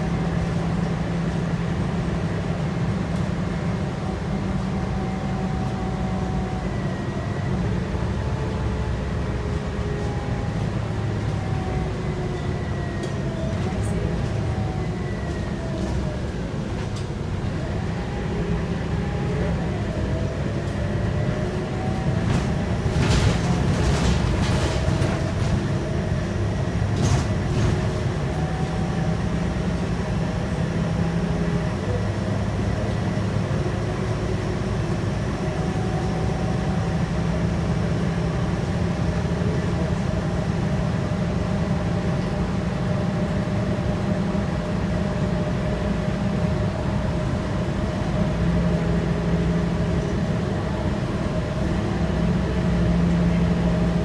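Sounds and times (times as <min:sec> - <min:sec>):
bus diesel engine rumble: 0:00.0 - 0:54.0
road noise: 0:00.0 - 0:54.0.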